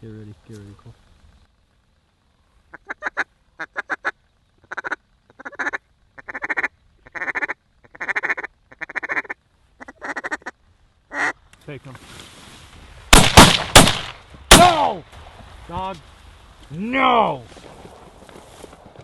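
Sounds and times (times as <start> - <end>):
duck call rapid quacking: 2.7 - 11.4.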